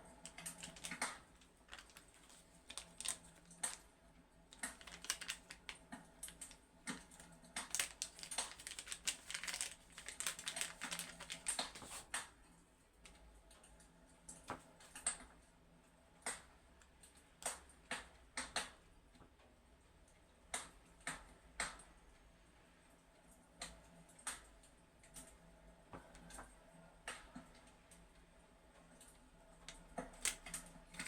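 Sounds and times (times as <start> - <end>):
fireplace crackling and popping: 4.5 - 12.3.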